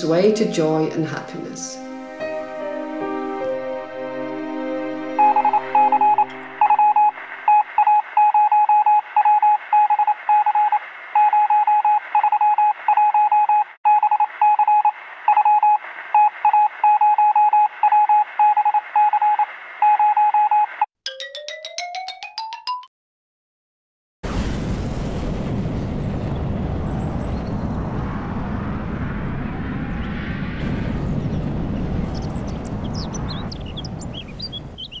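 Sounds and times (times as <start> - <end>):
music: 0.0 - 7.2, 21.1 - 22.9
morse code beeping: 5.2 - 22.1.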